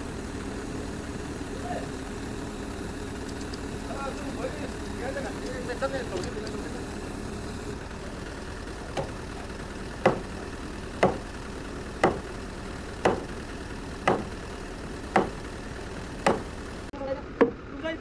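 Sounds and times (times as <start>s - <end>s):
engine hum: 0.0s - 18.0s
hammer blows on timber: 8.9s - 16.9s.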